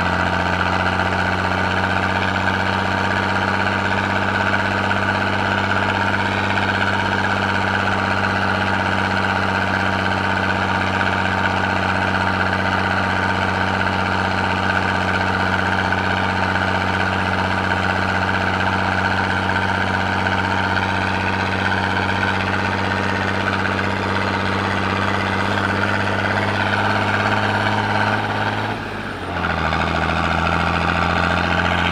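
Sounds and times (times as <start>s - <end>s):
tractor diesel engine under load: 0.0s - 31.9s.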